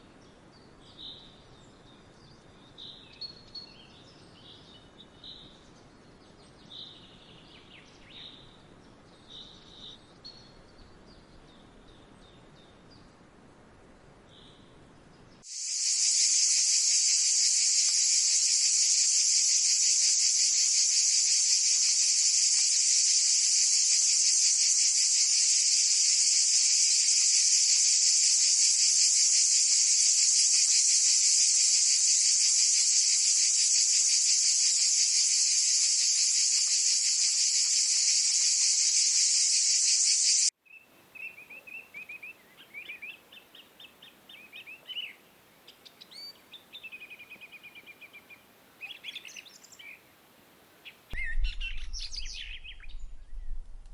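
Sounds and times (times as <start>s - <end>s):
high-pitched insect chorus: 15.5s - 40.5s
faint bird chirps: 33.0s - 50.1s, 50.8s - 53.6s.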